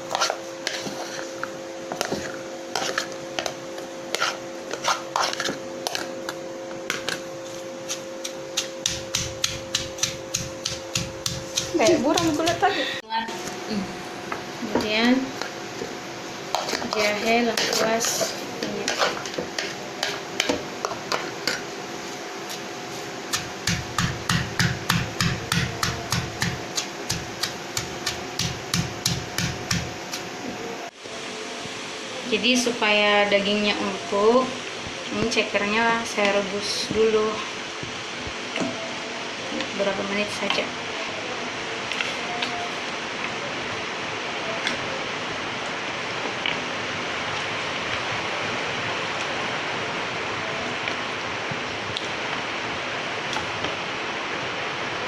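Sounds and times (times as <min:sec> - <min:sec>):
steady low hum: 0:00.0 - 0:55.0
mortar and pestle pounding: 0:07.9 - 0:12.6, 0:23.3 - 0:30.3.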